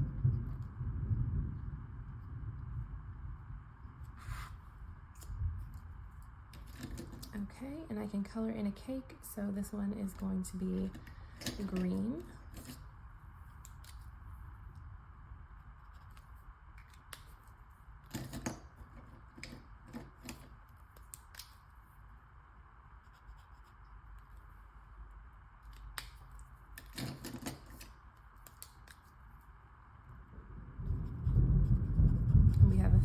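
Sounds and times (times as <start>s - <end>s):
marker scratching on paper: 4.0s - 4.6s, 23.0s - 24.4s, 30.8s - 33.0s.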